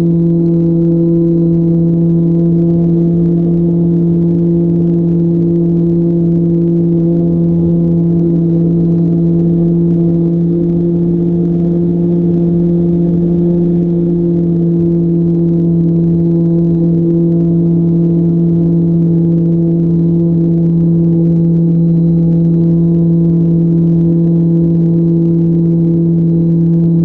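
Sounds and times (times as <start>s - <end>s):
model plane motor droning: 0.0s - 18.1s.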